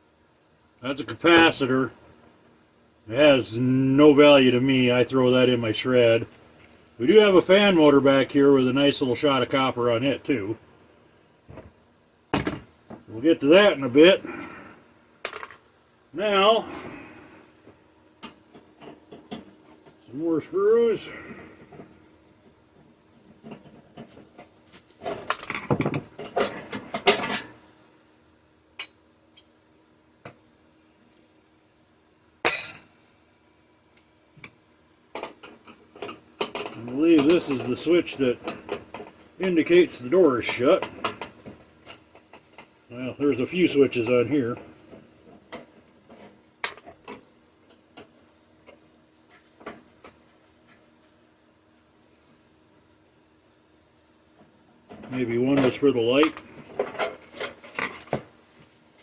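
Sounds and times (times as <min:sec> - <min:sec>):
small clicks and knocks from handling parts: 0:28.8 - 0:29.6, 0:33.9 - 0:37.8, 0:44.9 - 0:50.8.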